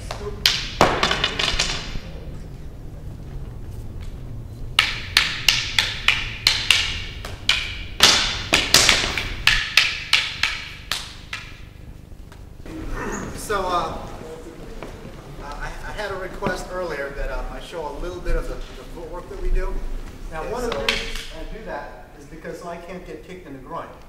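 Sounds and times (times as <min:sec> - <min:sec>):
wooden sticks clacking: 0:00.0 - 0:02.2, 0:04.8 - 0:11.8, 0:20.6 - 0:21.5.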